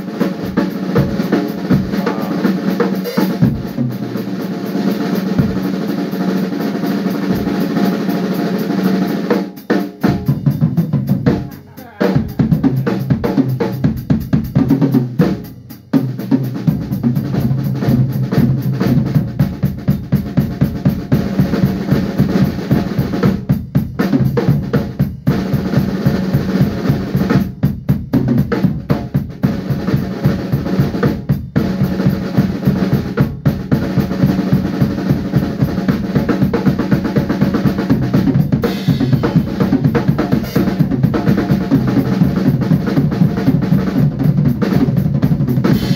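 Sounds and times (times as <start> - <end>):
drum kit beat: 0.0 - 45.9
band playing: 1.0 - 3.7, 9.9 - 13.7.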